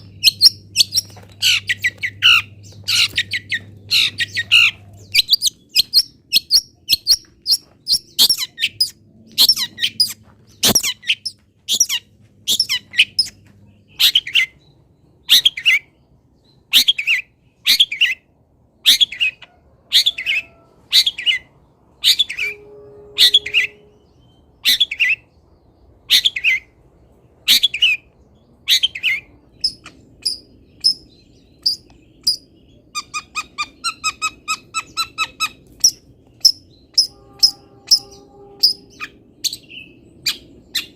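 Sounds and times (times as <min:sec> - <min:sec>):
scratchy songbird calls: 0:00.0 - 0:14.5, 0:31.6 - 0:39.6
fast repeated bird notes: 0:34.0 - 0:39.7.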